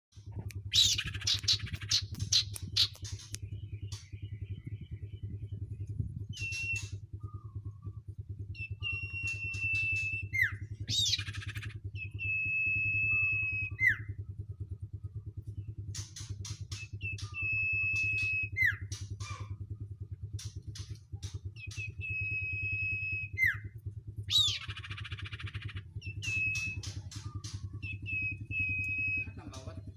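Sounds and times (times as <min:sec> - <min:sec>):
low mechanical hum: 0:00.1 - 0:29.9
young birds whistling calls: 0:00.6 - 0:04.1, 0:06.3 - 0:07.6, 0:08.5 - 0:14.1, 0:16.6 - 0:19.5, 0:24.2 - 0:29.7.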